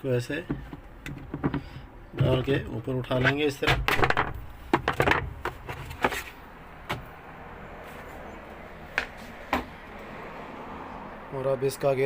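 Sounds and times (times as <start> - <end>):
sharp clicks and knocks: 0.4 - 7.1.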